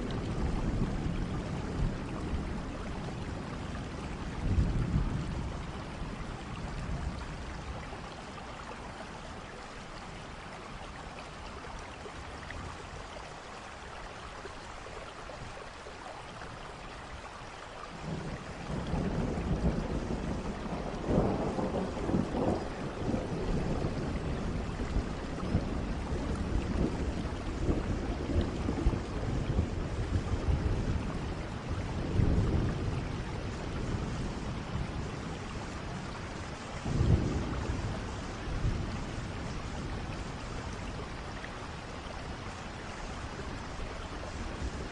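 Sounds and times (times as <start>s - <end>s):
rolling thunder: 0.0s - 7.8s, 18.0s - 44.9s
steady rain: 0.0s - 44.9s.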